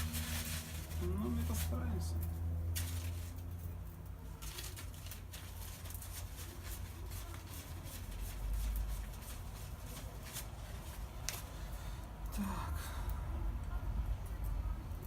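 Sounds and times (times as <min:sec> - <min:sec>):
small parts clicking and rustling: 0:00.0 - 0:11.5.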